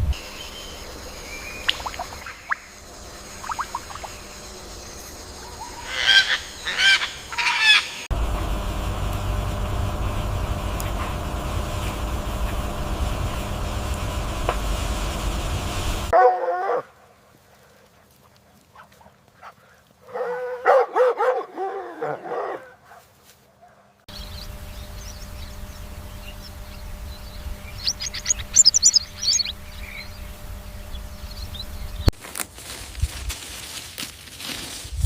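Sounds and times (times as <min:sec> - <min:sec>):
steady low hum: 0:00.0 - 0:16.2, 0:24.1 - 0:33.3
high clicking chirps: 0:01.5 - 0:05.7, 0:24.1 - 0:32.2.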